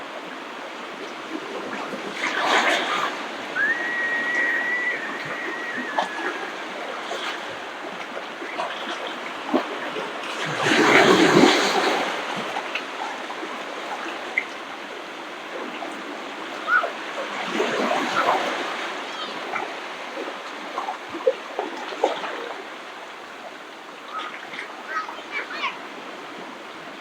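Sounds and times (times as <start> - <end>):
ocean surf washing on beach: 0.0 - 14.0
wave breaking: 2.0 - 8.6.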